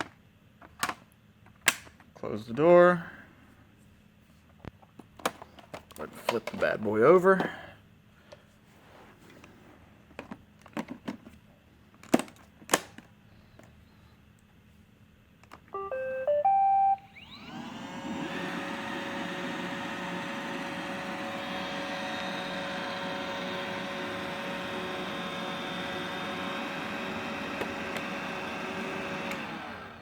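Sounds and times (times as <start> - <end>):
robot vacuum motor whining: 17.0 - 30.0.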